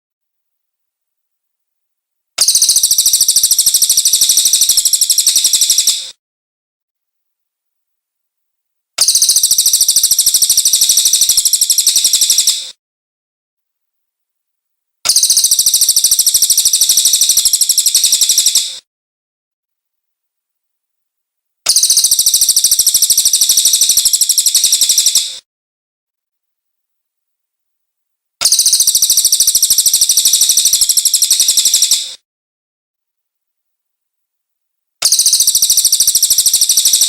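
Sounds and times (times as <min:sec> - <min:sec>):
bird singing high-pitched trill: 0:02.4 - 0:06.1, 0:09.0 - 0:12.7, 0:15.1 - 0:18.8, 0:21.7 - 0:25.4, 0:28.4 - 0:32.1, 0:35.0 - 0:37.0.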